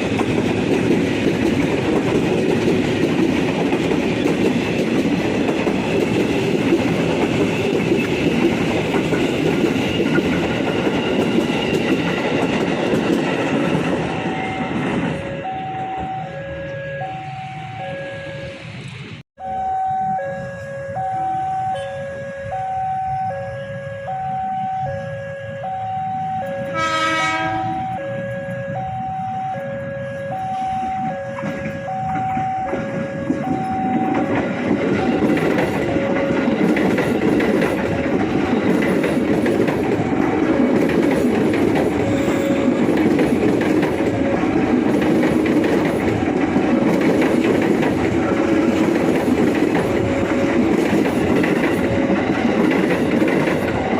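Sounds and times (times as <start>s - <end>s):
train clattering over rails: 0.0s - 16.1s, 30.6s - 53.9s
high-low electronic warning signal: 14.1s - 36.7s, 53.6s - 53.9s
train horn blast: 14.2s - 18.6s, 20.1s - 33.8s, 42.0s - 42.9s.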